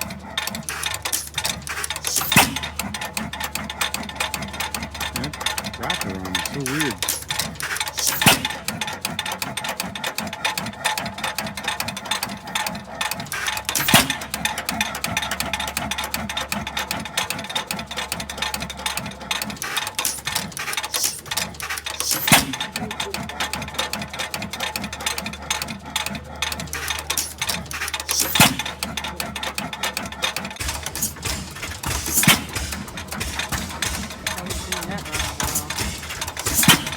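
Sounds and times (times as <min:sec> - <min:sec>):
sharp engine knock: 0:00.0 - 0:10.2, 0:11.1 - 0:36.9
antique engine clattering: 0:00.0 - 0:36.9
engine bang: 0:00.7 - 0:08.8, 0:30.6 - 0:36.9.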